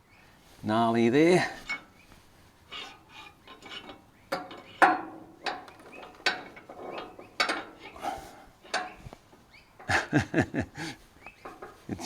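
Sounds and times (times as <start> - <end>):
metallic knocks and clanks: 1.6 - 1.9, 2.7 - 10.2, 11.4 - 12.0.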